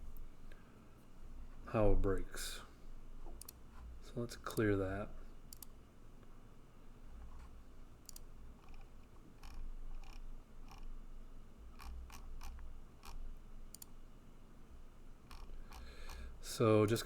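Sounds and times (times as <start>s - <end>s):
mouse and keyboard clicks: 8.1s - 10.9s, 15.3s - 16.2s.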